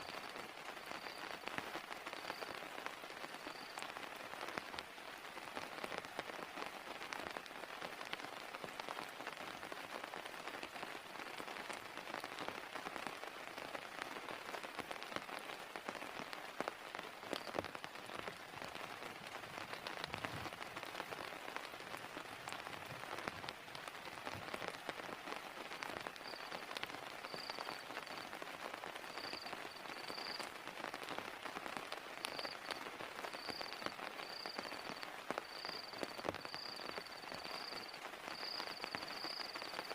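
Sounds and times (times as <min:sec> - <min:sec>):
heavy rain falling: 0:00.0 - 0:39.9
faint high chirp: 0:03.3 - 0:03.8, 0:26.2 - 0:26.6, 0:27.2 - 0:28.2, 0:29.1 - 0:30.5, 0:32.3 - 0:39.9.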